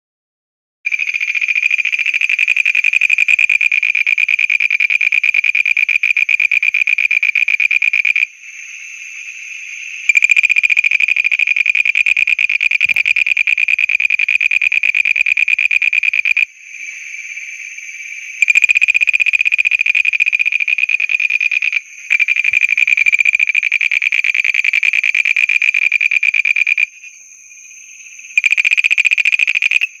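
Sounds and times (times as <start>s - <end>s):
fainter frogs trilling: 0.9s - 30.0s
frog trilling loudly: 18.4s - 27.1s.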